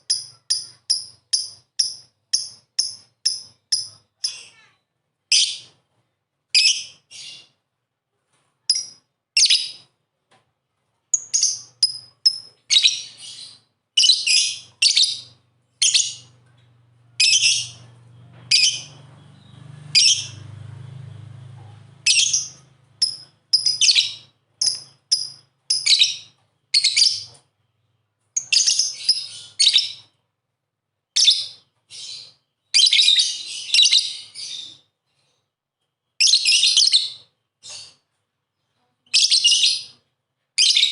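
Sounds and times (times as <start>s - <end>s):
faint low hum: 14.6s - 25.0s
bird chirping shrilly: 18.5s - 20.4s, 22.1s - 27.3s.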